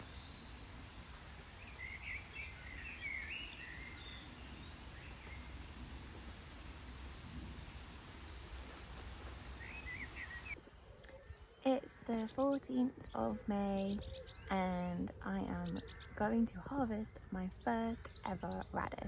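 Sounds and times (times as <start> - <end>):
steady hiss with low rumble: 0.0 - 10.6
birds chirping: 0.0 - 19.0.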